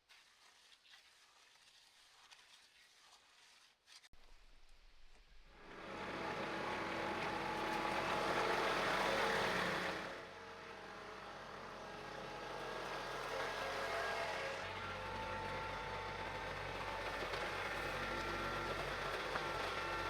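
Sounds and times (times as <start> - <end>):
engine running: 5.4 - 20.0.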